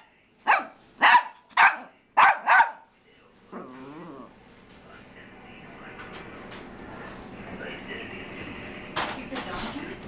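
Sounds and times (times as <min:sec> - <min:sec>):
dog wavering vocal sound: 0:03.5 - 0:04.4.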